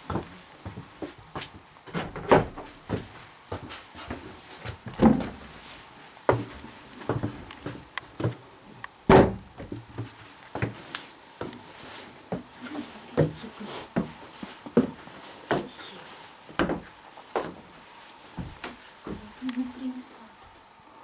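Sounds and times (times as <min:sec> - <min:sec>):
knocks and thumps on wood: 0:01.9 - 0:03.7, 0:04.9 - 0:05.4, 0:09.1 - 0:10.8, 0:16.6 - 0:17.6.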